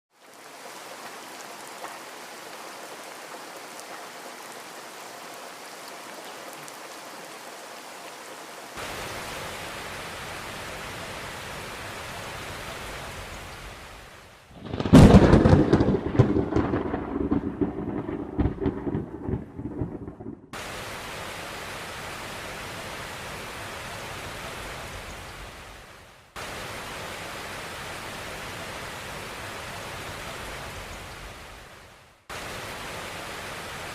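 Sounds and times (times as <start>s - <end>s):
steady rain falling: 0.1s - 33.9s
loud thunderclap rumbling: 14.6s - 20.6s.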